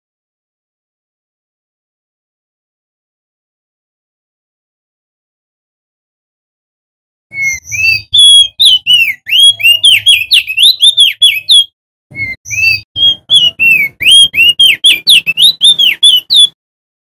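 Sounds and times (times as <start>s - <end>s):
bird singing whistled notes: 7.3s - 16.6s.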